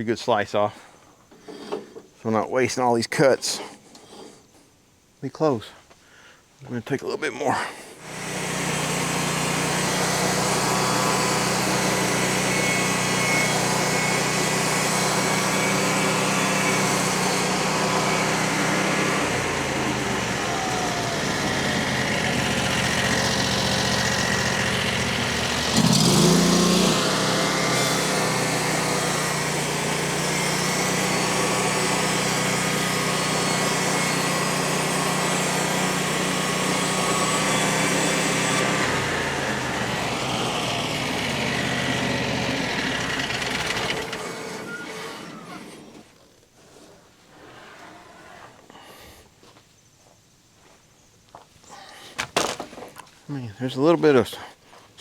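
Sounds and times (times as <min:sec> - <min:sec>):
sawmill gas engine running: 0:08.0 - 0:46.1.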